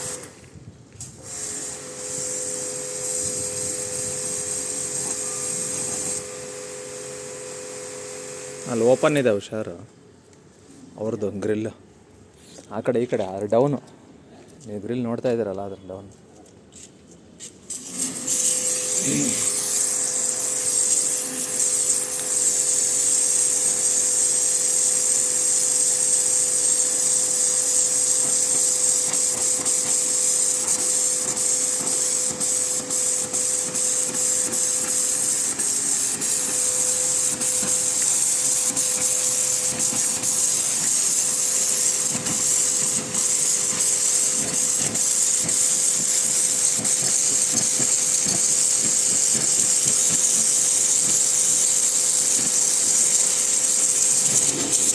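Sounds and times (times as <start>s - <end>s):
pressure washer water jet hissing: 0.0s - 0.4s, 1.0s - 9.3s, 17.6s - 54.9s
motor hum: 26.9s - 54.9s.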